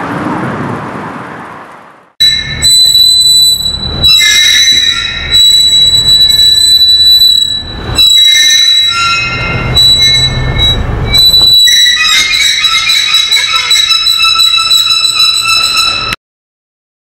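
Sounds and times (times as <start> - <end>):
metal whining and screeching: 2.2 - 16.2
low rumble: 8.8 - 11.6.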